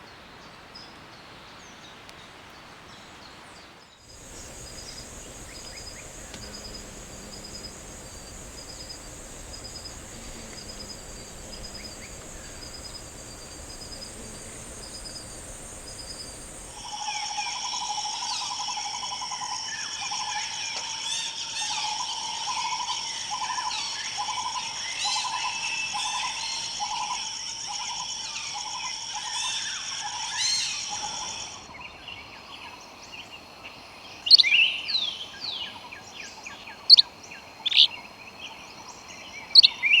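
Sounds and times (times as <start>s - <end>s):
high insect drone: 4.1s - 16.9s
chorus of insects and birds: 4.1s - 23.4s, 26.3s - 40.0s
loud bird call: 4.2s - 16.8s
low repeating animal call: 4.2s - 16.8s.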